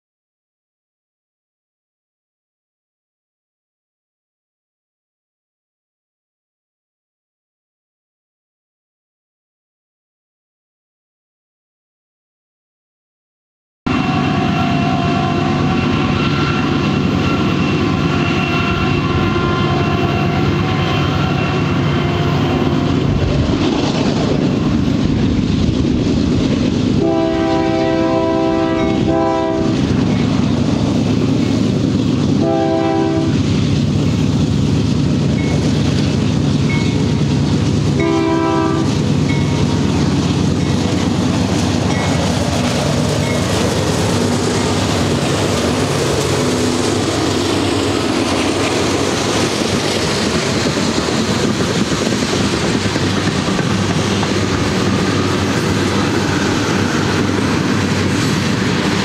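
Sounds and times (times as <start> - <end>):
train air horn: 13.9 - 23.0, 27.0 - 29.9, 32.4 - 33.4, 38.0 - 39.0
diesel locomotive engine rumble: 13.9 - 59.0
rail noise: 13.9 - 59.0.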